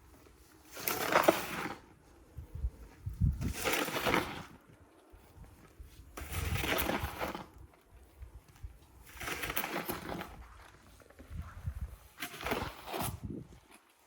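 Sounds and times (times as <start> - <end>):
snow shovel scraping snow: 0.2 - 2.1, 3.4 - 4.7, 5.8 - 7.6, 9.0 - 13.9.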